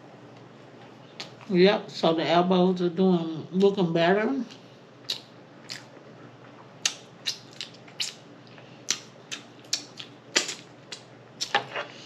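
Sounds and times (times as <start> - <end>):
lip smacking and mouth clicks: 5.0 - 5.9, 6.5 - 11.5.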